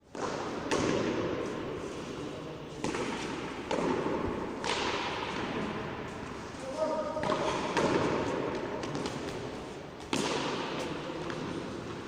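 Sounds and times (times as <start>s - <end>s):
ball smacking off court walls: 2.8s - 5.6s, 10.0s - 11.6s.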